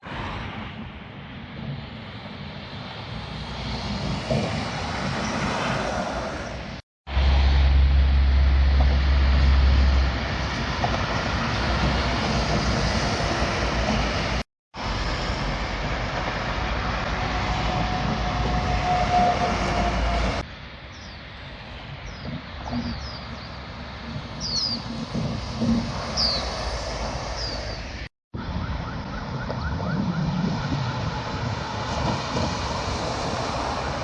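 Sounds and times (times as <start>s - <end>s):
heavy trucks passing: 0.0s - 20.5s, 23.6s - 28.1s, 29.7s - 34.0s
distant traffic: 0.0s - 34.0s
birds chirping: 20.9s - 21.3s, 22.0s - 23.7s, 24.4s - 25.0s, 25.6s - 28.0s.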